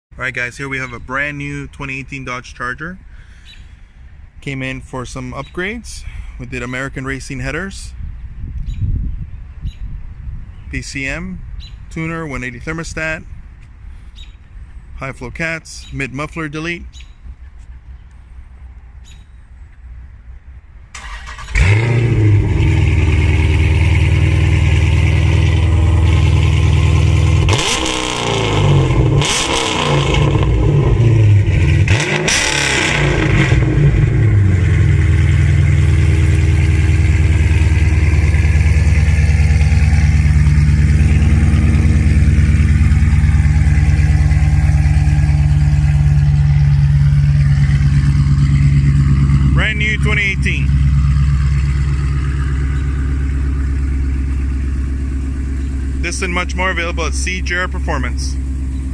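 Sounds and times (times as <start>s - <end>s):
car engine starting and idling: 20.3s - 58.9s
engine revving: 21.0s - 58.9s.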